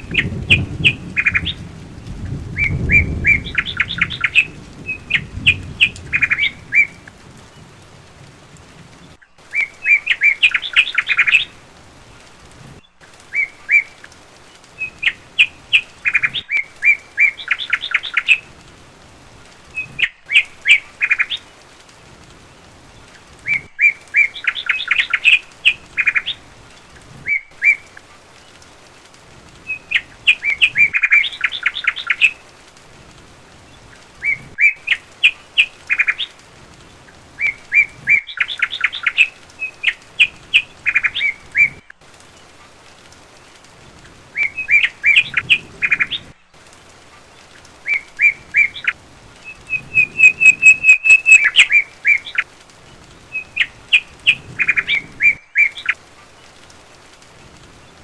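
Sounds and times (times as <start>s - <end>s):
bird song chirps: 2.6s - 7.0s, 47.9s - 52.4s.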